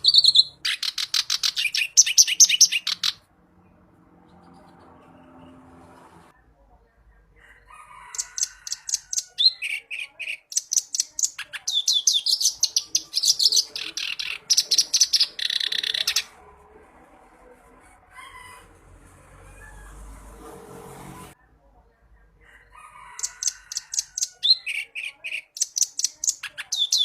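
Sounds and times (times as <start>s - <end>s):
reed warbler singing: 0.0s - 3.2s, 8.1s - 16.3s, 23.2s - 27.0s.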